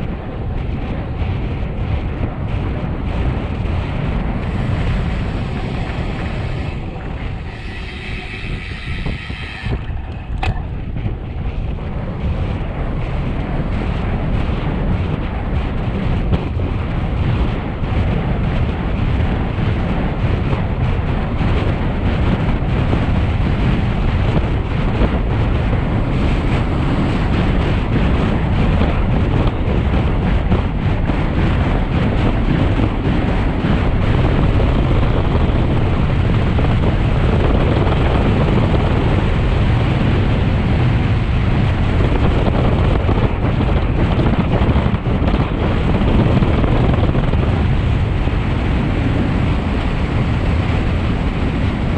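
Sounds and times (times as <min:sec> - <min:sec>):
wind rushing over microphone: 0:00.0 - 0:51.9
pitched whine: 0:02.5 - 0:12.2.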